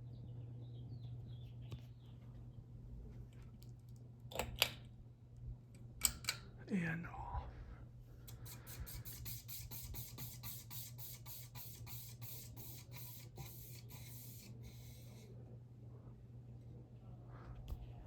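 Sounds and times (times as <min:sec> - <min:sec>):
ceiling fan blades swishing: 0:07.2 - 0:18.0.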